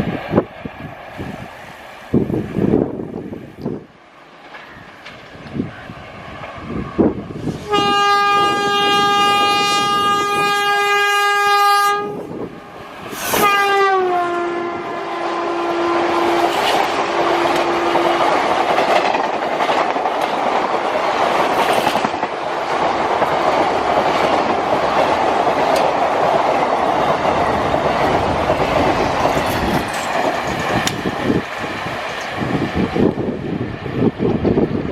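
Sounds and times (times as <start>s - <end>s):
train coaches clattering on rails: 0.0s - 11.6s, 15.8s - 34.9s
train horn blast: 7.5s - 12.4s, 13.3s - 18.3s.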